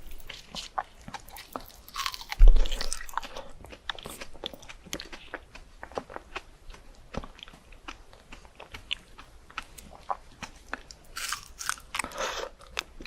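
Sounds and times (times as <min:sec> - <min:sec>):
crisp fruit chewing: 0:00.0 - 0:13.0
loud booming thump: 0:02.4 - 0:02.7.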